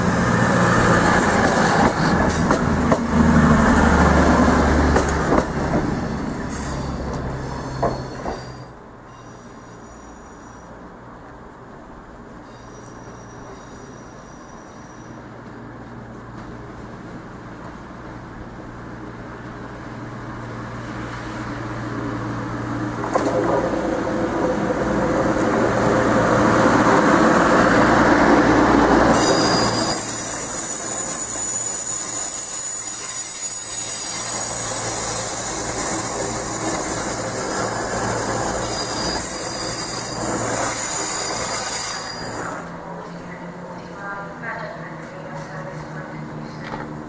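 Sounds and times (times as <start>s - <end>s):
diesel train engine approaching: 0.0s - 47.0s
high-pitched wheel squeal: 5.9s - 10.7s, 12.4s - 15.2s, 29.1s - 42.6s.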